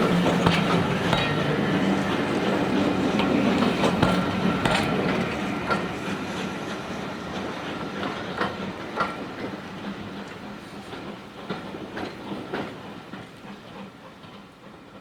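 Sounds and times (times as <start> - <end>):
wheels clicking over rail joints: 0.0 - 5.4
train rumbling along track: 0.0 - 15.0.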